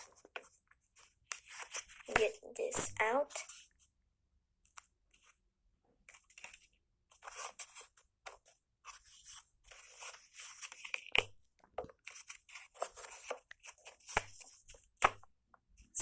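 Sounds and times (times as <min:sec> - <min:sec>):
rustling and crinkling: 0:00.0 - 0:03.9, 0:06.0 - 0:15.1.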